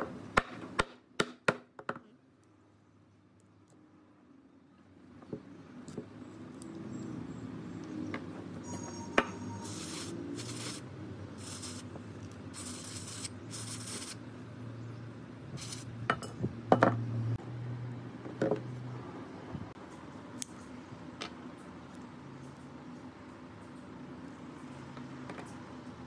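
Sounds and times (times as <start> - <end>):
hissing spray bursts: 9.6 - 10.8, 11.4 - 11.9, 12.5 - 14.2, 15.6 - 15.9.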